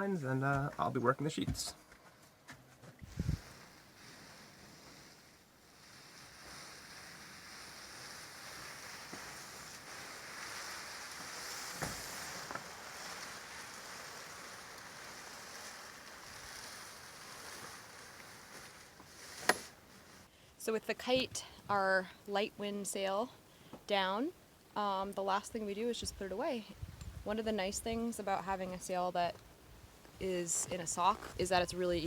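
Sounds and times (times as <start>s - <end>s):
water washing around boat: 3.4s - 19.0s.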